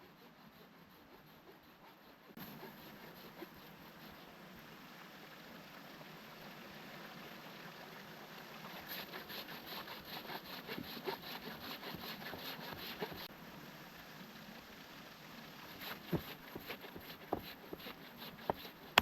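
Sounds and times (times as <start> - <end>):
hand saw cutting wood: 0.0 - 4.3, 8.7 - 13.3, 15.7 - 19.0
faint background hiss: 1.7 - 19.0.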